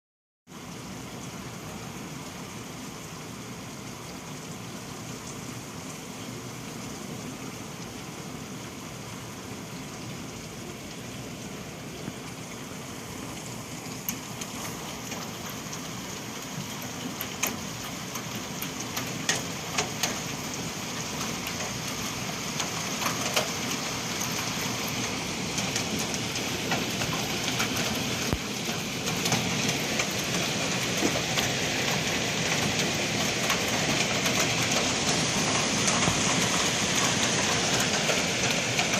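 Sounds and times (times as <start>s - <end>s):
hiss of falling hail: 0.5s - 38.9s
hailstones clicking: 13.3s - 38.9s.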